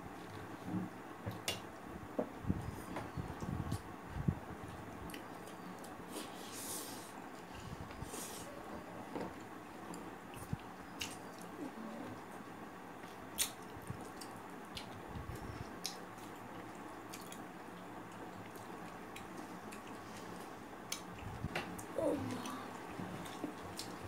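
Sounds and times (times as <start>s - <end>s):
person chewing with mouth smacks: 9.9s - 11.6s, 13.4s - 21.9s.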